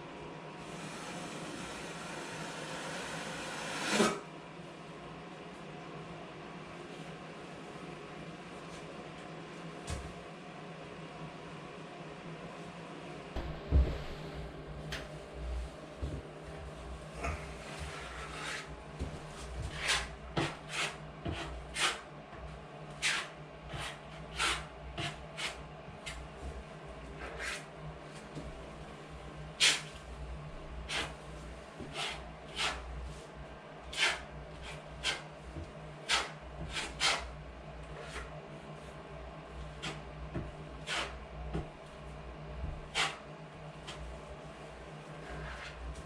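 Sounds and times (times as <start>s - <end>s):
steady low hum: 4.2s - 46.0s
drywall scrapes and taps: 17.2s - 22.0s, 33.9s - 37.3s, 39.7s - 41.9s, 42.6s - 43.2s.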